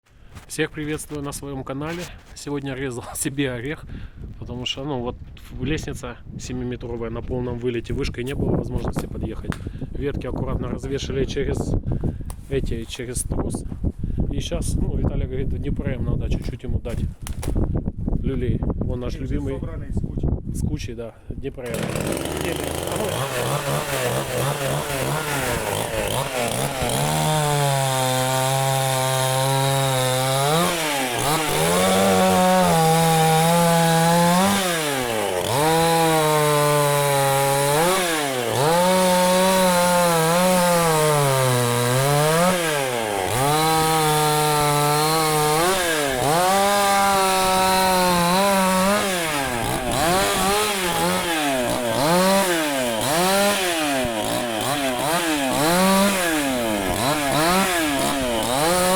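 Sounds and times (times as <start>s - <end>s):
chainsaw cutting branches: 21.6s - 58.9s.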